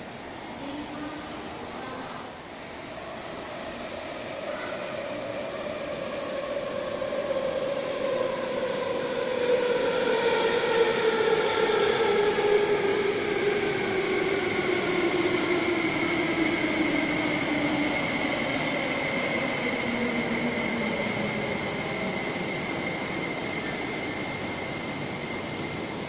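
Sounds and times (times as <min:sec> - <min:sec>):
steady high whine: 0:11.3 - 0:26.0.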